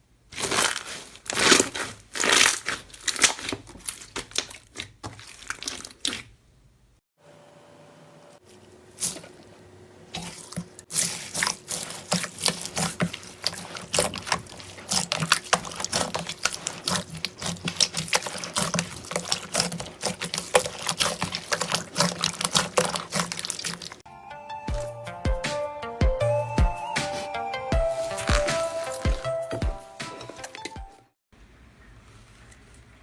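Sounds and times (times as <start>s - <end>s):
music: 24.1s - 31.2s.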